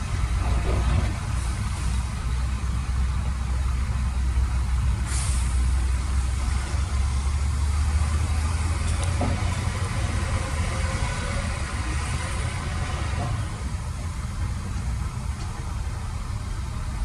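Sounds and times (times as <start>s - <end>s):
diesel engine droning: 0.0s - 17.0s
short hiss: 5.0s - 6.2s.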